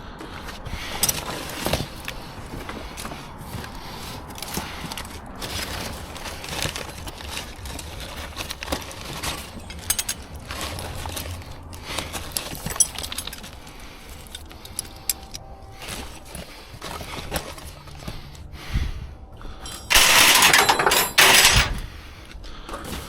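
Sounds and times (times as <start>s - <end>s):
scrap metal clanking: 8.3s - 11.3s, 19.6s - 21.9s.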